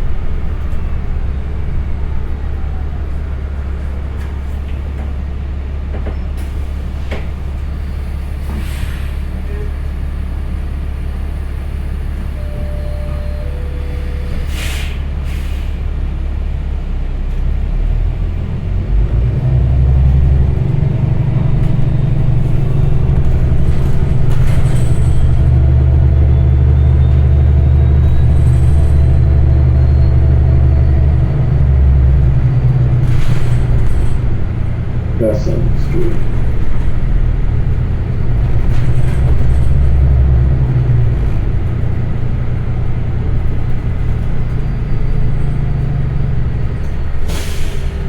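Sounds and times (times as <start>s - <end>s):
bus engine rumbling: 0.0s - 48.0s
short hisses: 14.4s - 15.7s.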